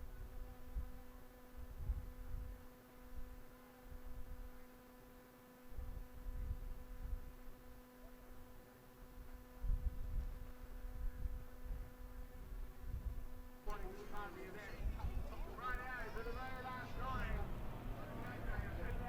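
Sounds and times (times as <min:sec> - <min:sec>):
faint electrical hum: 0:00.0 - 0:19.0
low rumbling: 0:13.7 - 0:19.0.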